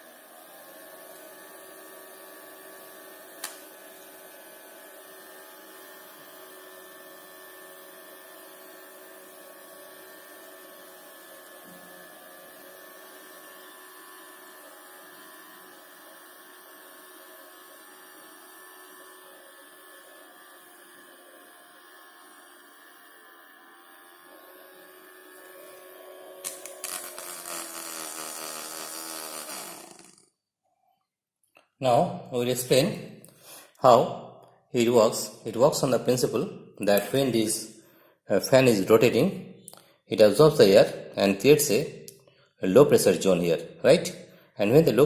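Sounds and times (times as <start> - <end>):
small electric motor whining: 0.0 - 30.4
sharp click: 3.4 - 3.6.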